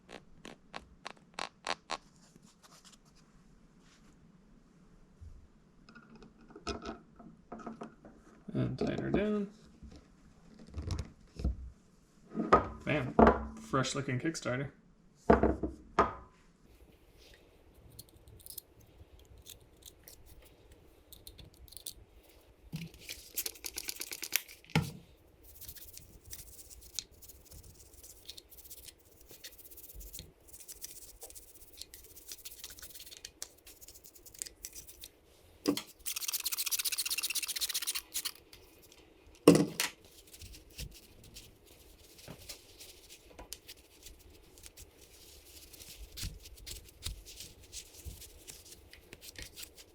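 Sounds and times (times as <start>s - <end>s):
parts scratching and rustling: 17.8s - 49.9s
small clicks of parts: 21.1s - 22.0s.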